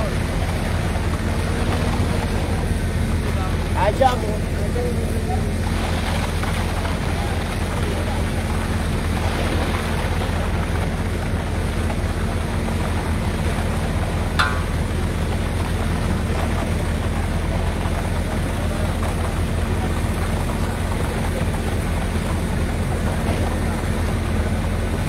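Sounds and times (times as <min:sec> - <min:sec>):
heavy machinery engine running: 0:00.0 - 0:25.0
sharp metallic clank: 0:14.4 - 0:14.9.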